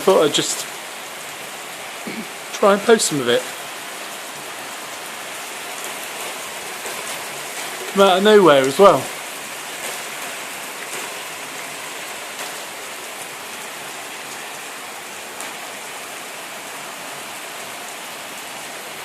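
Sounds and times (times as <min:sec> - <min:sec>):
heavy rain falling: 0:00.0 - 0:19.0
louder single raindrop: 0:05.6 - 0:16.0.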